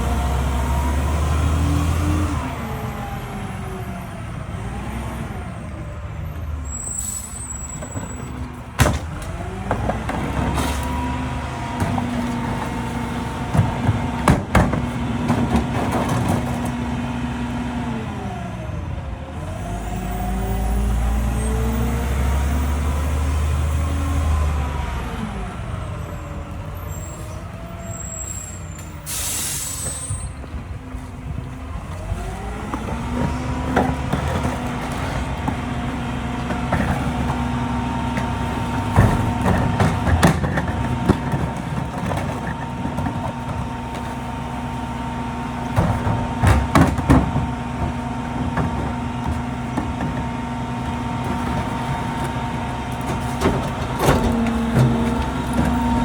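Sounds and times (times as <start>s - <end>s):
garbage truck diesel engine: 0.0s - 56.0s
air brake hissing: 6.7s - 7.8s, 27.0s - 30.4s
metallic knocks and clanks: 45.6s - 56.0s.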